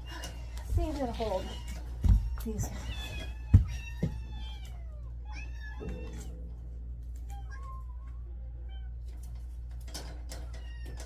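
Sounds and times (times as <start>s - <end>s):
steady low hum: 0.0s - 10.8s
kittens meowing: 1.2s - 6.4s, 7.2s - 9.1s.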